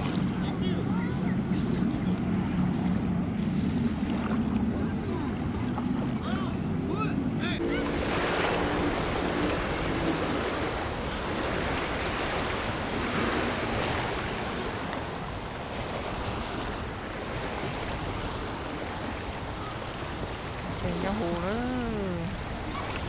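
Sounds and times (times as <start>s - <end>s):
rushing water: 0.0s - 23.0s
wind: 0.0s - 23.0s.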